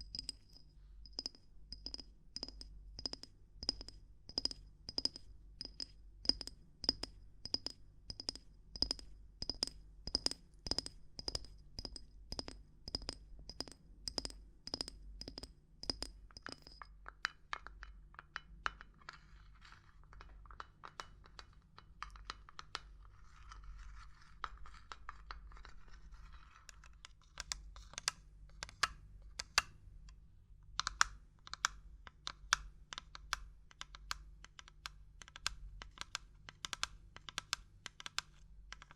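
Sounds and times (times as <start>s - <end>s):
tapping on small hard objects: 0.0s - 29.7s, 30.8s - 38.9s
scratching: 22.8s - 26.9s.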